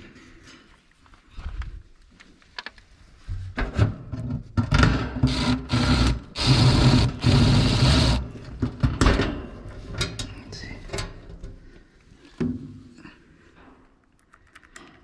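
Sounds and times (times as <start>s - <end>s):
impact driver driving screws: 4.8s - 8.5s.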